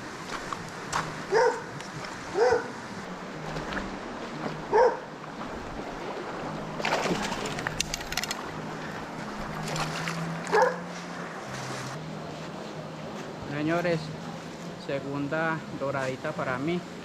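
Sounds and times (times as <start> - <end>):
dog yelping: 1.3 - 1.7, 2.4 - 2.7, 4.7 - 5.0, 10.5 - 10.8.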